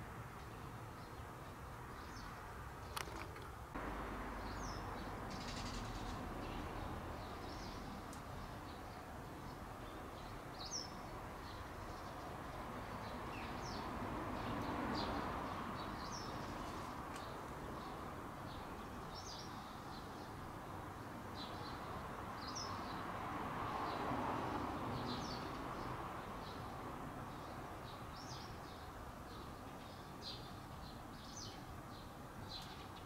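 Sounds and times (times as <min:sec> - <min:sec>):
small birds chirping: 0:00.3 - 0:23.1, 0:24.9 - 0:33.0
outdoor background rumble: 0:02.8 - 0:09.6.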